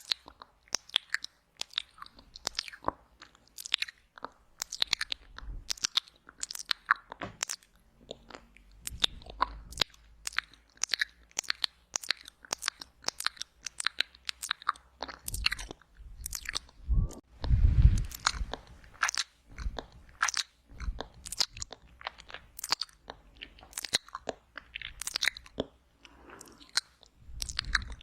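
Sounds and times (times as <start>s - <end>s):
saliva sounds: 0.0s - 28.0s
tongue clicks: 0.0s - 28.0s
wet lip smacks: 17.4s - 28.0s.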